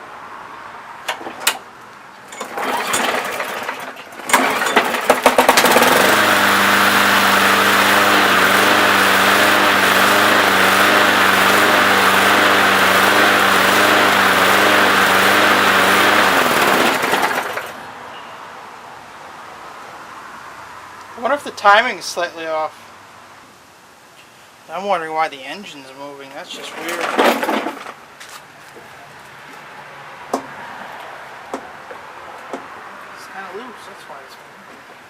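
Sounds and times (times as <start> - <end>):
lawnmower engine running: 2.2 - 18.0
recoil rope pull: 2.4 - 17.8.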